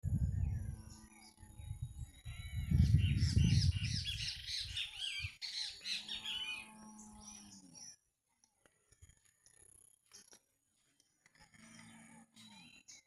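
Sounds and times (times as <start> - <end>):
flock of birds chirping: 0.1 - 13.0.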